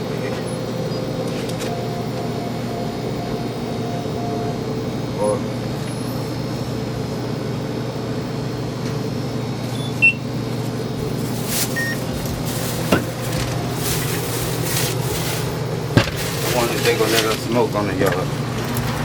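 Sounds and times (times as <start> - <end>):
car cabin hum: 0.1 - 7.0
short high beep: 1.7 - 5.4.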